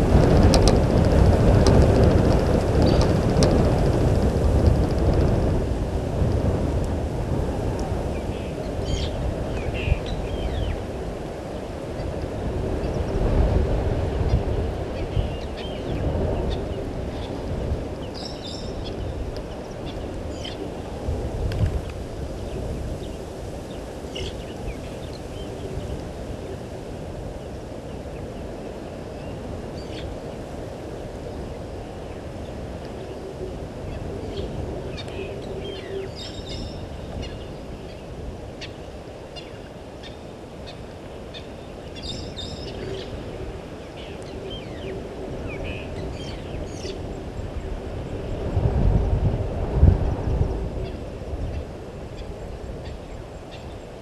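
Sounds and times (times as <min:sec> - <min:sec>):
low background rumble: 0:00.0 - 0:08.4
wild birds chirping: 0:02.2 - 0:04.2, 0:08.1 - 0:10.9, 0:18.0 - 0:21.0, 0:33.0 - 0:47.6.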